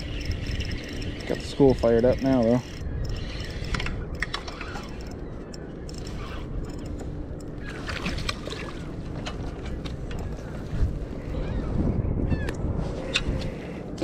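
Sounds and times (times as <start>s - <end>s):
water lapping against kayak hull: 6.1s - 10.9s
small knocks and splashes: 7.7s - 10.0s.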